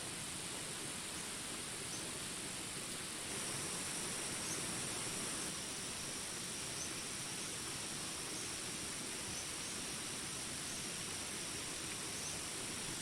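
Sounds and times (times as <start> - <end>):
rain hiss: 0.0 - 13.0
high insect drone: 3.2 - 13.0.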